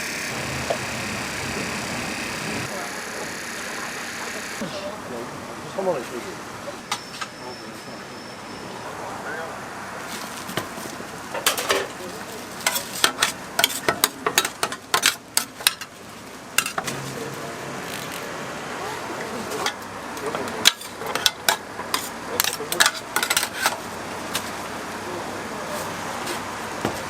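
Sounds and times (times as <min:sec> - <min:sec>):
steady sizzle: 0:00.0 - 0:04.6.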